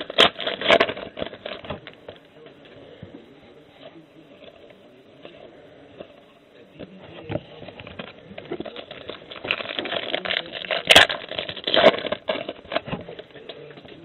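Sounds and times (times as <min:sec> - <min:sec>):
foil wrapper crinkling: 0:00.0 - 0:02.7, 0:07.3 - 0:14.0.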